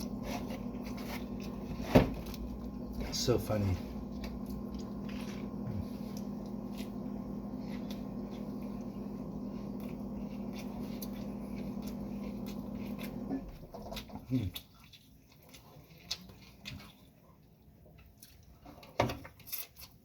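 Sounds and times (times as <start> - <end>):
steady low hum: 0.0 - 13.8
takeout food handled and eaten: 0.0 - 20.0.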